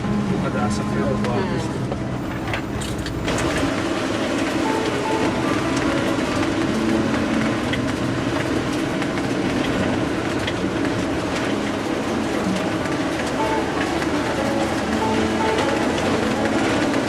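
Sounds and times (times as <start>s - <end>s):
car cabin road and engine noise: 0.0s - 17.0s.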